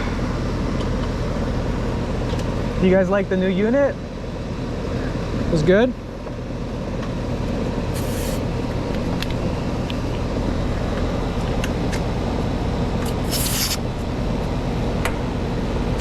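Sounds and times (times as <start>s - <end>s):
air conditioner unit humming: 0.0s - 16.0s
brief hisses: 8.0s - 8.4s, 13.1s - 13.8s.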